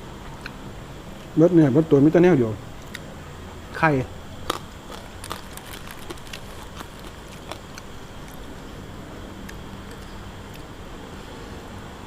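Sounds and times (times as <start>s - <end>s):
eating clicks and smacks: 4.4s - 8.6s, 9.4s - 10.8s.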